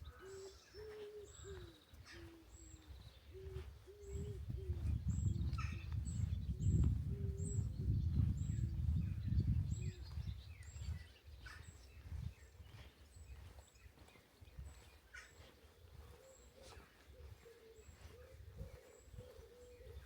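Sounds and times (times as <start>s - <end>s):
pigeon cooing: 0.0s - 5.1s, 16.0s - 20.0s
small birds chirping: 0.0s - 20.0s.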